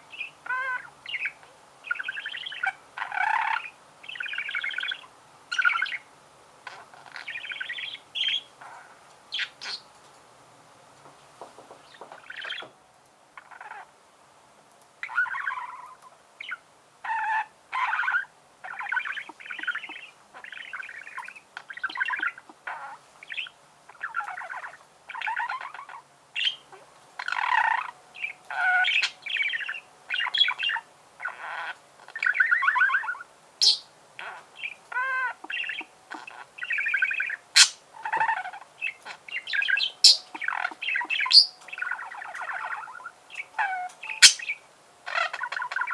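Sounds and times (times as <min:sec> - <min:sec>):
budgerigar warbling: 0:00.4 - 0:06.0, 0:16.4 - 0:26.6, 0:27.2 - 0:45.9.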